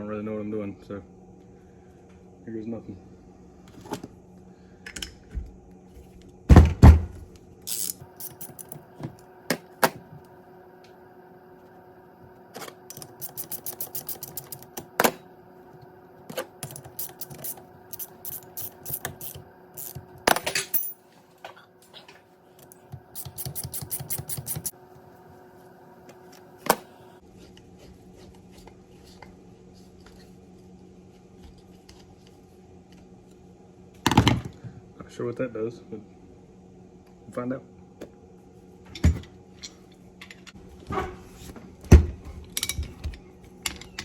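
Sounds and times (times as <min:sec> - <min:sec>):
steady background hum: 0:00.0 - 0:44.0
metal tools clinking: 0:07.7 - 0:08.8, 0:19.8 - 0:21.0.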